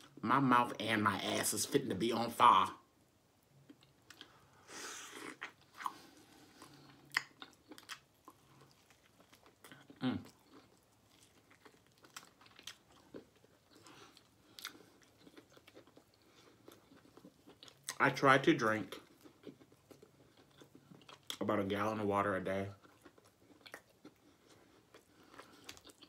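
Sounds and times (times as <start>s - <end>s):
person biting and chewing meat: 3.7s - 18.0s, 22.8s - 26.0s.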